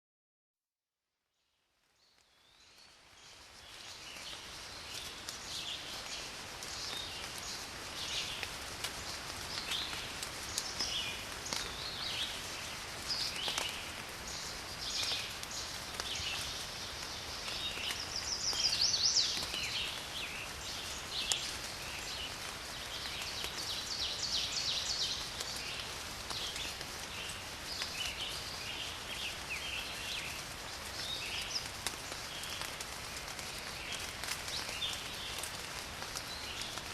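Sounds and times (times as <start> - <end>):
steady rainfall: 2.2 - 36.9
birds singing and calling: 9.5 - 32.8.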